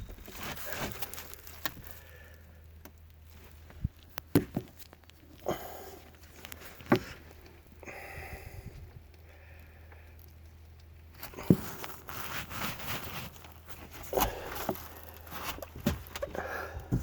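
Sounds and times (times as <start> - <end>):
rustling: 0.0 - 7.8, 10.1 - 17.0
low steady hum: 0.0 - 17.0
sharp handling knocks: 4.3 - 4.8.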